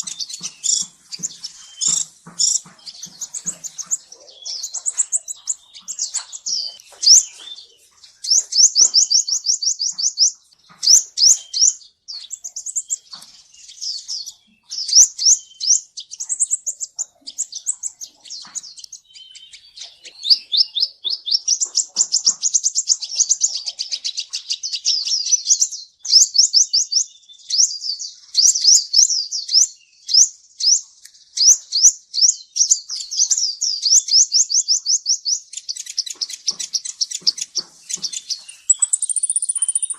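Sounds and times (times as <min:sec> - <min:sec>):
bird singing high trills: 0:00.0 - 0:21.7, 0:30.2 - 0:39.9.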